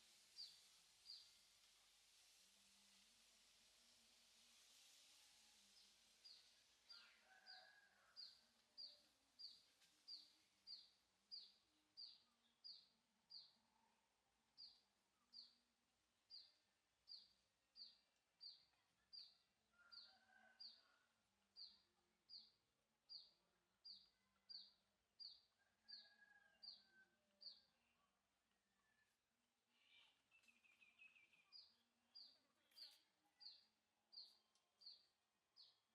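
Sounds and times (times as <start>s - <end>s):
fainter lower bird calls: 6.4s - 8.1s, 16.3s - 21.0s, 28.8s - 34.5s.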